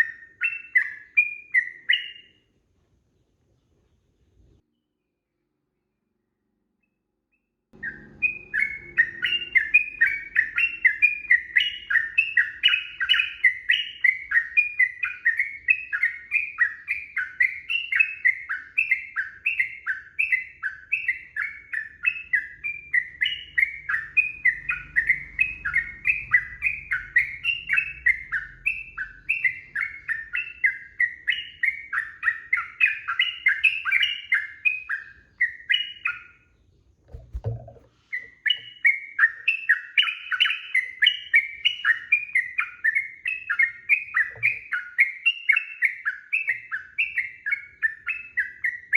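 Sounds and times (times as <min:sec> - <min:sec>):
bird singing chattering notes: 0:07.8 - 0:36.4, 0:37.1 - 0:48.9.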